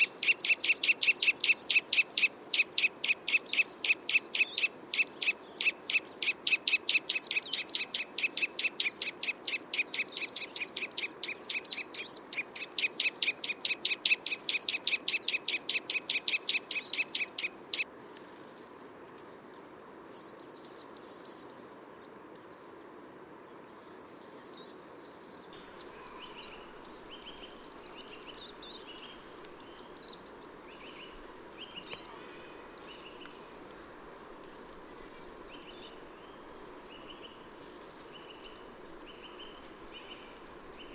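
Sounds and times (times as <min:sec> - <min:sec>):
songbird trill: 0:20.2 - 0:40.9
bird whistles: 0:25.6 - 0:36.4, 0:37.0 - 0:40.9
bird chirps: 0:25.6 - 0:40.9.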